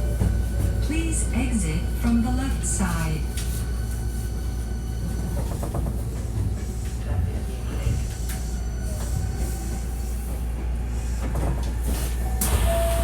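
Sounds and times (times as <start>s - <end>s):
electric train running rumble: 0.0s - 13.0s.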